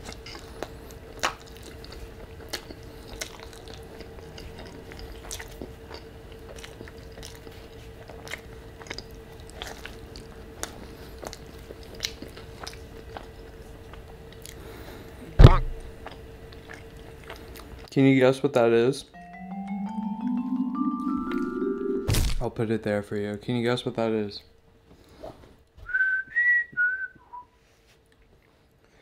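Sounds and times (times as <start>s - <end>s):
wet chewing mouth clicks: 0.0s - 14.6s
loud thump: 15.4s - 15.8s.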